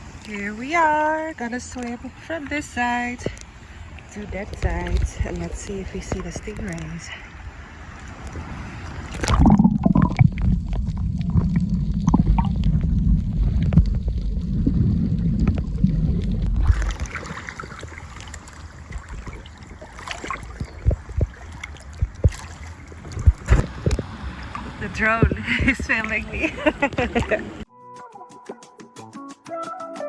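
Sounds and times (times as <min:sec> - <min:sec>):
water gurgling and sloshing: 0:00.0 - 0:27.7
water splashes: 0:00.0 - 0:27.7
deep muffled underwater rumble: 0:09.0 - 0:27.6.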